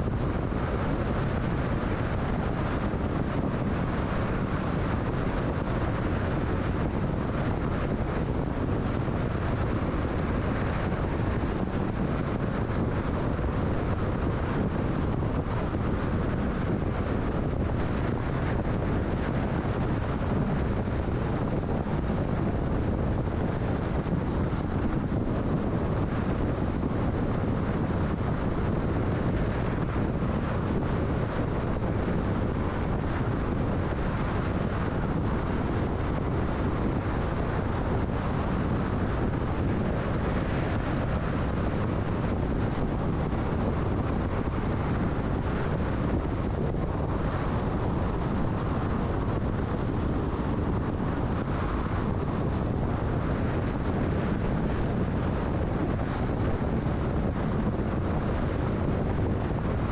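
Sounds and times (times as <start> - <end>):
wind noise: 0.0 - 59.9.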